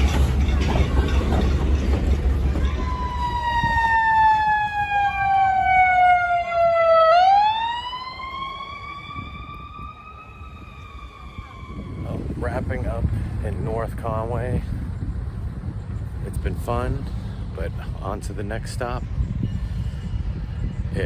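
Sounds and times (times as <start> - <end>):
siren wailing: 2.6 - 12.3.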